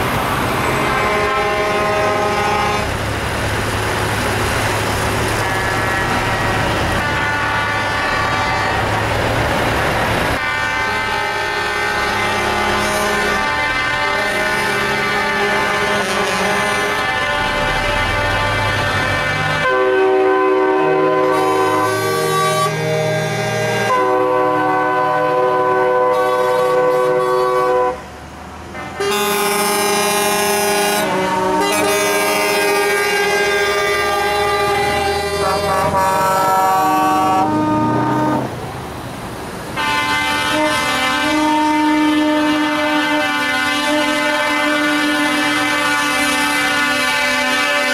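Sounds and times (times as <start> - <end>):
truck air horns: 0.0 - 3.1, 4.4 - 9.6, 10.3 - 38.6, 39.8 - 47.9
diesel engine noise: 0.0 - 47.9.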